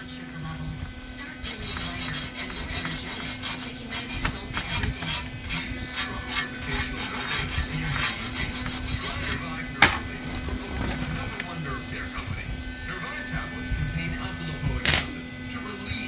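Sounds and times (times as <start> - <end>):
steady low hum: 0.0 - 16.0
hand tool rasping on metal pipe: 1.4 - 10.0.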